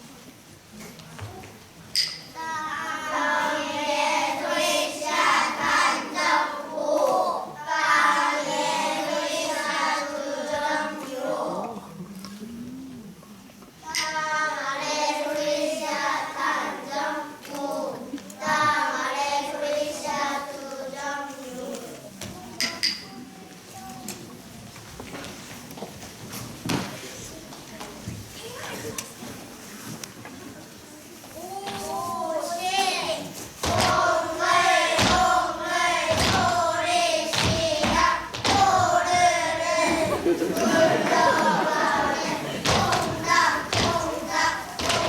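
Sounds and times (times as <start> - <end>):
young children singing: 2.0 - 24.4, 31.3 - 45.0
heavy rhythmic thump: 33.6 - 45.0.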